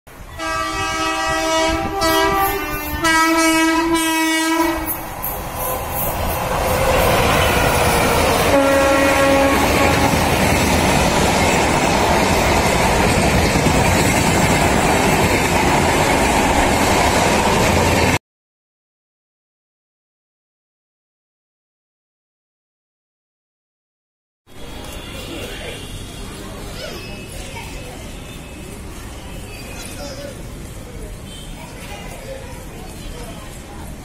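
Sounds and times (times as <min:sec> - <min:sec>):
train coaches running on track: 0:00.1 - 0:18.2, 0:24.5 - 0:34.0
locomotive horn blasts: 0:00.3 - 0:05.0, 0:08.4 - 0:10.2.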